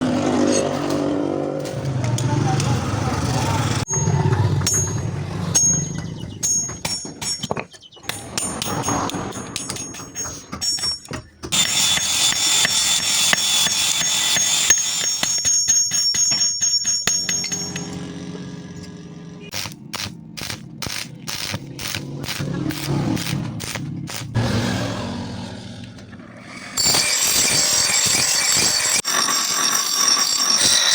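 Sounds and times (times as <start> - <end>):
high-pitched metallic ringing: 3.9 - 7.5, 9.3 - 19.6, 26.6 - 30.9
hammer striking anvil: 3.9 - 18.2.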